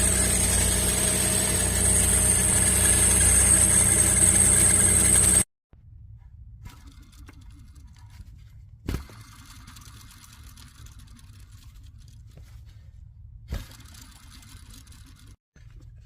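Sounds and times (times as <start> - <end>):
car engine idling: 0.0 - 5.4.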